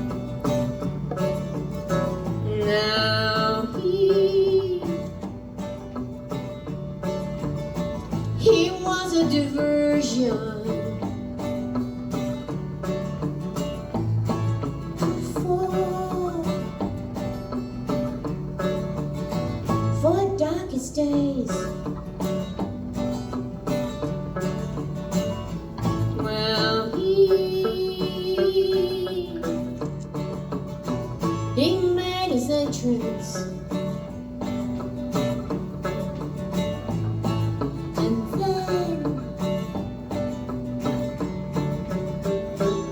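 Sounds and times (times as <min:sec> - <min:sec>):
strummed acoustic guitar: 0:00.0 - 0:42.9
person singing: 0:02.4 - 0:05.2, 0:08.4 - 0:11.0, 0:15.0 - 0:16.8, 0:26.1 - 0:30.0, 0:38.0 - 0:39.4.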